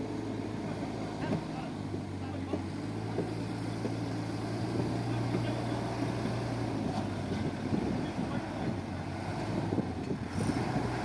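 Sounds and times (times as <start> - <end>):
diesel engine rumbling: 0.0 - 11.0
wind noise on microphone: 6.7 - 11.0.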